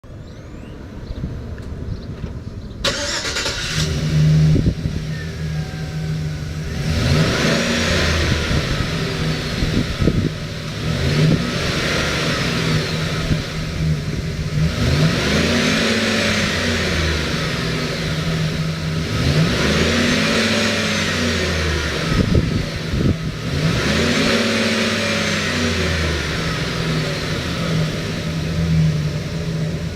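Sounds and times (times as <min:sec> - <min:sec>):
engine idling and revving: 0:00.0 - 0:29.9
van engine cranking: 0:01.9 - 0:29.9.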